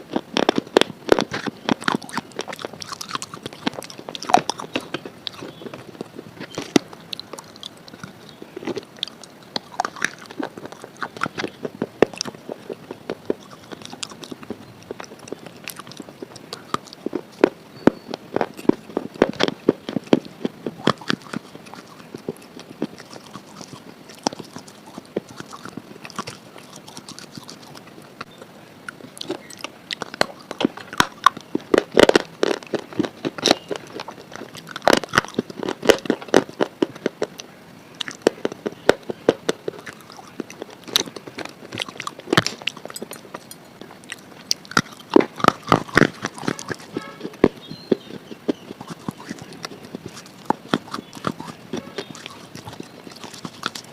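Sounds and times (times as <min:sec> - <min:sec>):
person chewing something crunchy: 0:00.0 - 0:53.9.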